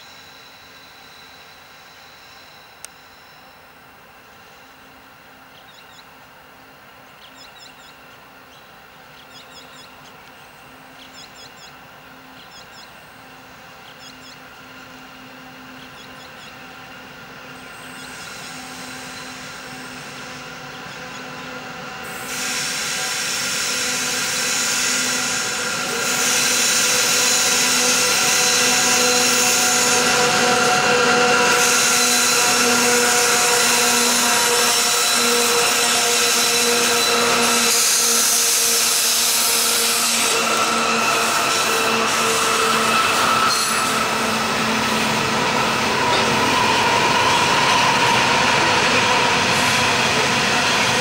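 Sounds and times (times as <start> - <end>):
diesel locomotives working hard: 0.0 - 51.0
rumble of wheels on rail: 0.0 - 51.0
high wheel squeal: 12.5 - 51.0.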